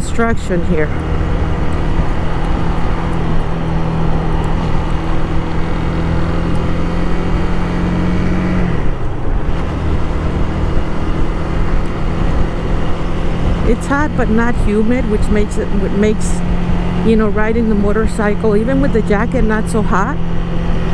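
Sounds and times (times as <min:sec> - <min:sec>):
motorcycle engine running: 0:00.0 - 0:20.9
wind and road noise: 0:00.0 - 0:20.9.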